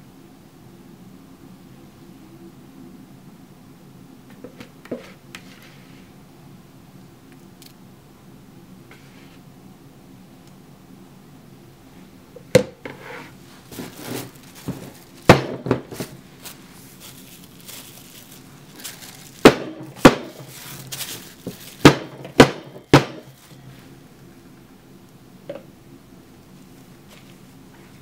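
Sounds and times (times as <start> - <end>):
soft rustling: 13.0 - 21.9, 26.5 - 28.0
hard objects knocking together: 13.8 - 16.2, 18.8 - 23.4.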